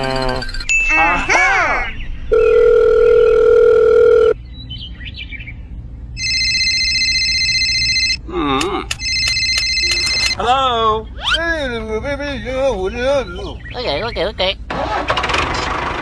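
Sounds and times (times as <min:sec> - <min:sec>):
high phone ringing tone: 0:02.3 - 0:04.4, 0:06.2 - 0:08.2, 0:08.9 - 0:10.4
clicks: 0:08.6 - 0:10.4.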